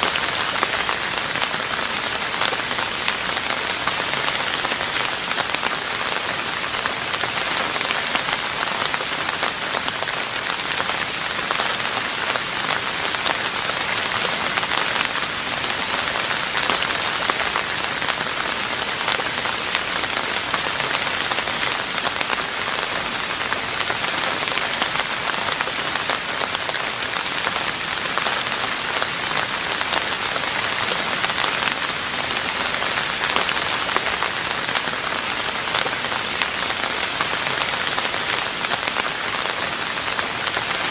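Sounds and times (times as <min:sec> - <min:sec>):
rain falling on a roof: 0:00.0 - 0:40.9.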